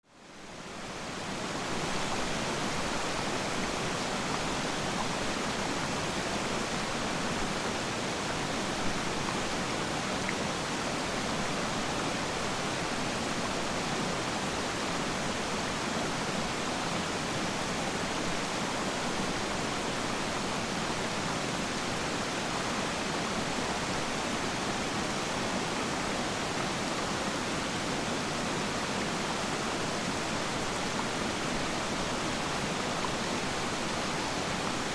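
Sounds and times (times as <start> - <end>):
waterfall roar: 0.4 - 34.9.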